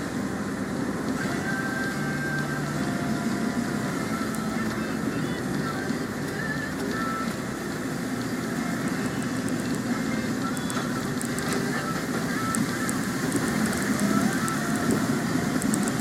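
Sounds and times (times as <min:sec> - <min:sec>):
rain hitting a car: 0:00.0 - 0:16.0
road and tyre noise: 0:00.0 - 0:16.0
sharp ticks: 0:09.1 - 0:16.0.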